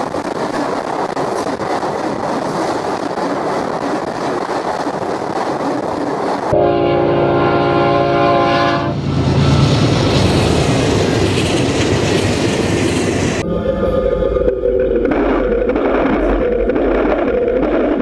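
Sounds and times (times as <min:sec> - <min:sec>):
train wheels rushing on rail: 0:00.0 - 0:18.0
train horn chord: 0:06.5 - 0:10.0.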